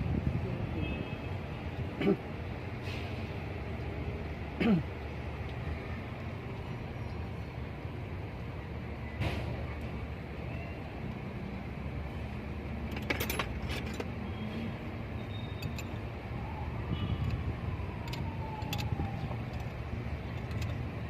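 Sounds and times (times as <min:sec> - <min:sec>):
metal tools clinking: 0:12.8 - 0:14.2, 0:15.3 - 0:16.0, 0:18.0 - 0:20.9.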